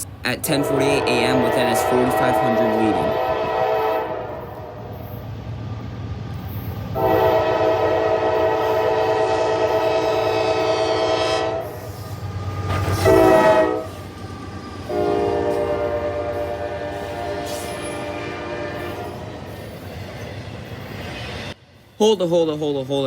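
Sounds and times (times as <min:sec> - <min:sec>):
locomotive air horn blasts: 0:00.5 - 0:05.0, 0:07.0 - 0:11.9, 0:12.8 - 0:14.0, 0:14.9 - 0:19.3.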